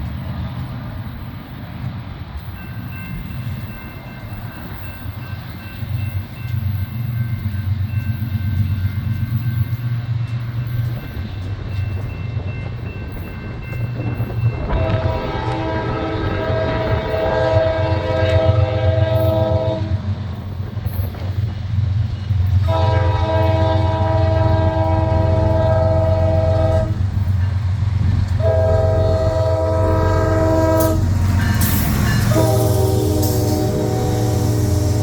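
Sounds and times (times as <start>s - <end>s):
locomotive air horn blasts: 14.7s - 20.0s, 22.6s - 27.0s, 28.4s - 35.0s.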